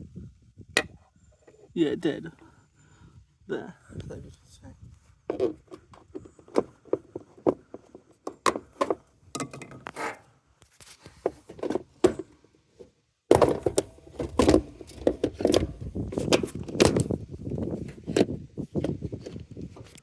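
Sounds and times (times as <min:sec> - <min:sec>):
metal and plastic parts clattering: 0:11.1 - 0:12.4, 0:13.3 - 0:20.0.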